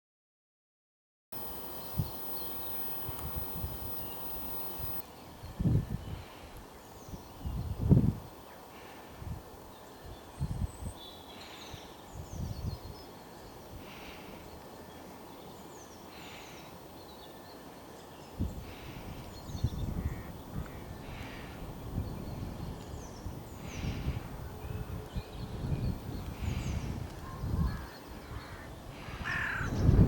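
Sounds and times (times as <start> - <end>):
small birds chirping: 1.4 - 5.0
wind rumble on microphone: 21.6 - 27.9, 28.8 - 30.0.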